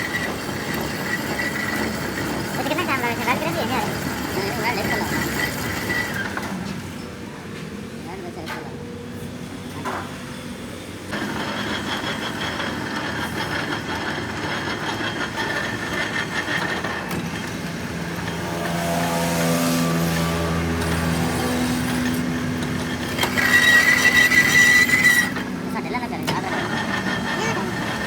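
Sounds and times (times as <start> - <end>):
engine running and revving: 9.1 - 24.6, 25.2 - 28.0.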